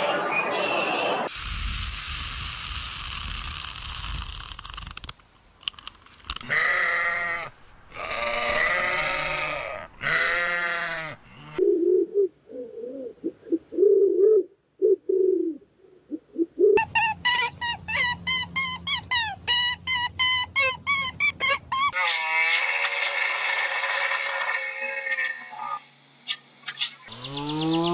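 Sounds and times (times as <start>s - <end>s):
goat bleating: 6.4s - 11.6s.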